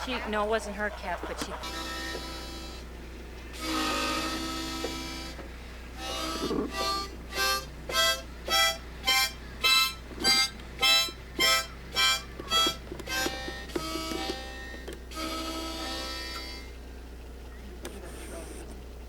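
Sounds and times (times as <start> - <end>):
harmonica playing a tune: 0.0 - 16.9
breaths: 5.6 - 6.0.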